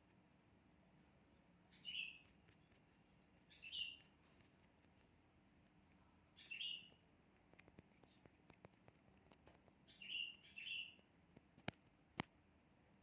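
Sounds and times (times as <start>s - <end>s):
faint low hum: 0.0s - 13.0s
bird chirping: 1.2s - 5.2s, 5.9s - 7.0s, 7.9s - 8.6s, 9.2s - 11.1s.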